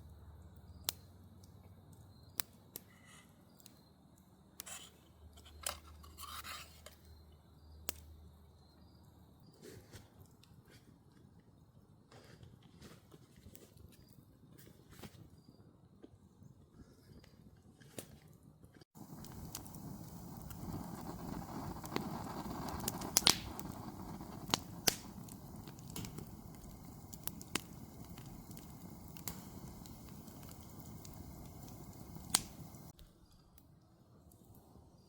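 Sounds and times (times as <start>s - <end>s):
campfire hissing and crackling: 0.0s - 7.2s, 18.9s - 33.0s.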